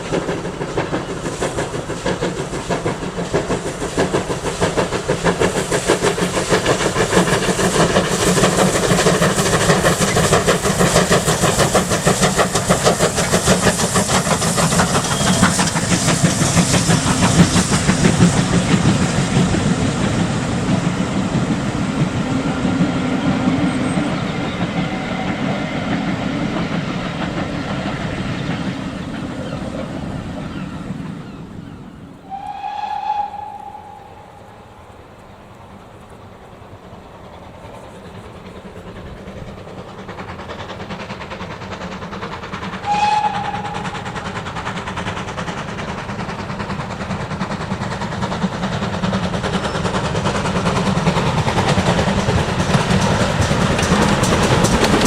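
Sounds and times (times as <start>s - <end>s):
steam hiss: 0.0s - 30.5s, 32.2s - 55.0s
train clatter: 0.0s - 55.0s
train whistle: 15.0s - 16.2s, 32.2s - 35.2s, 42.8s - 44.4s.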